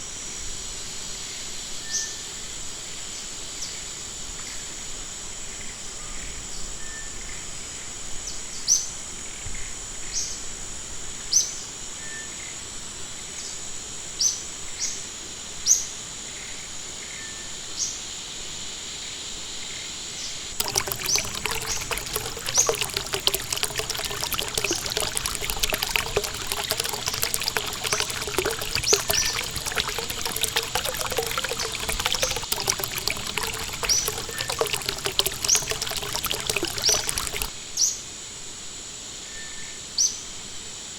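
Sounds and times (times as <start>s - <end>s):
stream trickling and splashing: 20.6s - 37.6s.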